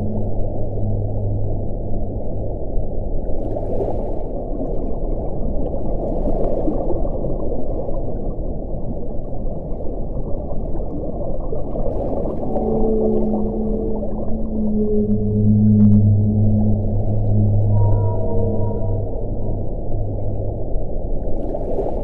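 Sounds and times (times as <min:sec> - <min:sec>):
low held tones: 0:00.0 - 0:03.3, 0:12.3 - 0:21.5.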